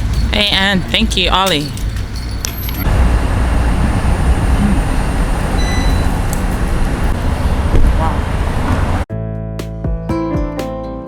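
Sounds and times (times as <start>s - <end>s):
loud low rumbling: 2.8s - 9.1s.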